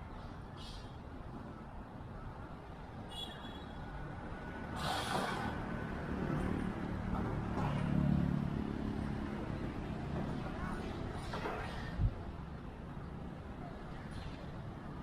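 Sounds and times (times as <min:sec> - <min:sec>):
vehicle engines passing: 0:04.0 - 0:15.0.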